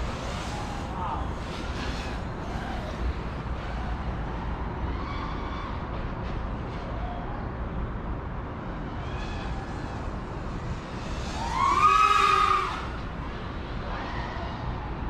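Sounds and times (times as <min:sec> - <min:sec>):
drone motors whining: 0:00.0 - 0:04.7, 0:09.0 - 0:14.7.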